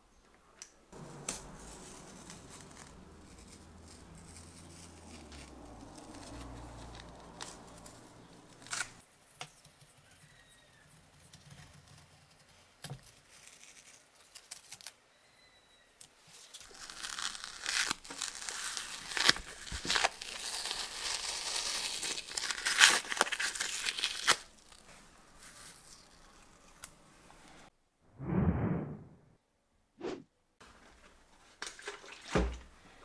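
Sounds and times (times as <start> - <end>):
hands rubbing and rustling: 1.0 - 8.0.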